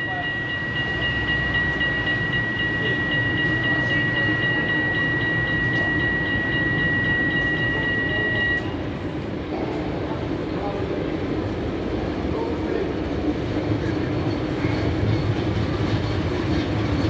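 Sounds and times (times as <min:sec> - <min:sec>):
high-pitched tone: 0:00.0 - 0:08.8
tram rumbling: 0:00.0 - 0:17.0.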